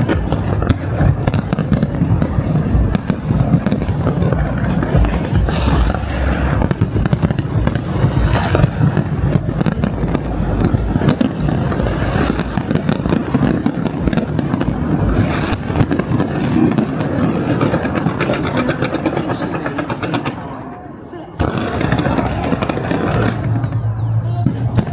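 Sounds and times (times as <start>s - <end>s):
rapid firework cracks: 0.0s - 19.3s
fireworks bangs and crackles: 0.0s - 24.9s.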